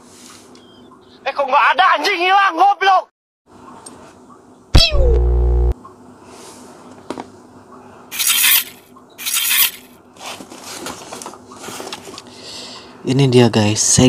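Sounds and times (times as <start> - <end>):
knife slicing packing tape: 8.2 - 9.9.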